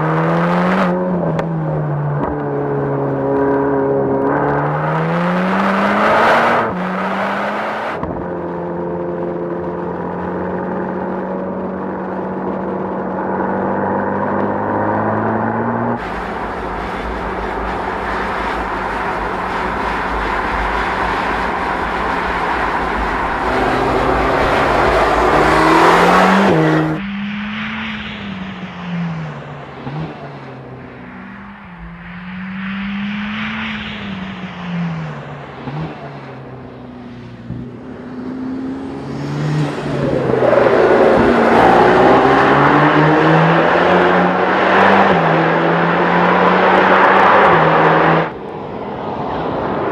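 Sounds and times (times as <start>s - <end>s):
car engine revving hard: 0.0s - 1.4s, 3.2s - 8.0s, 13.4s - 27.8s, 37.8s - 48.3s.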